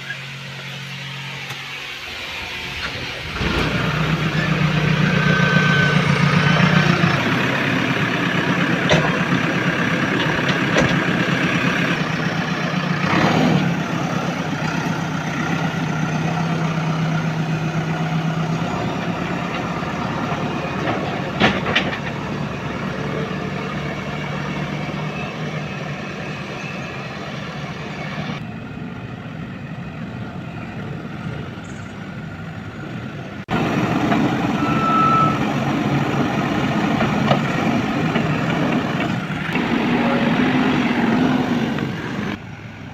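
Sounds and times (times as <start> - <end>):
diesel engines running: 0.0 - 42.9.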